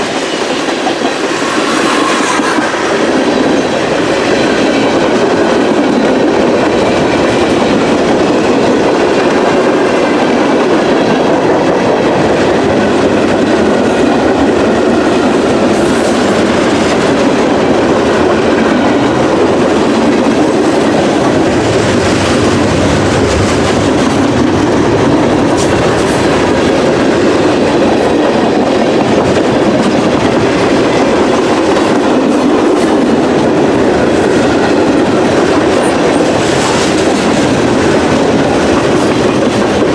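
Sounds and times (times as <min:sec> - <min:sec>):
train squeals: 0:00.0 - 0:08.6, 0:12.2 - 0:39.9
freight train wheels clacking: 0:00.0 - 0:39.9.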